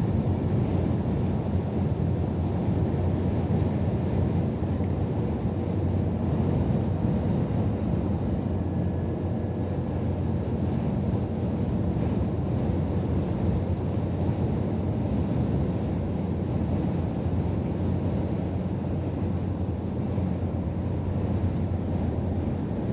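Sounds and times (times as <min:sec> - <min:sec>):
truck diesel engine rumble: 0:19.4 - 0:22.9.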